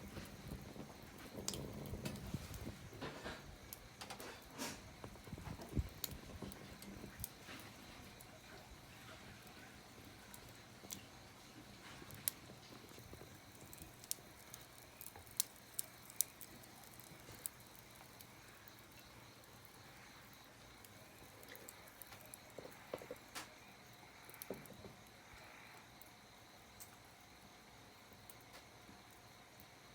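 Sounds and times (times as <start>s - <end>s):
sharp fire pops: 0.0s - 7.8s
wood fire crackling: 0.0s - 29.9s.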